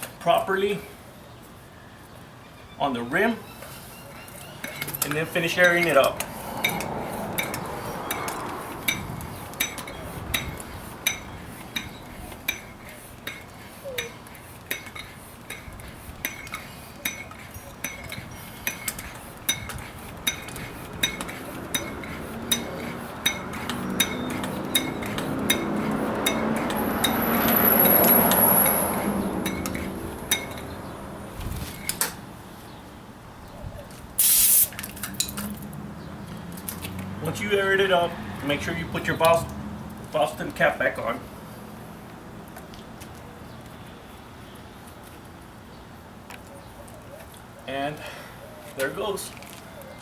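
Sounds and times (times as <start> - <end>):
bicycle pump metallic clink: 3.6 - 28.8, 29.4 - 30.7
rush of air from pump: 34.2 - 34.8.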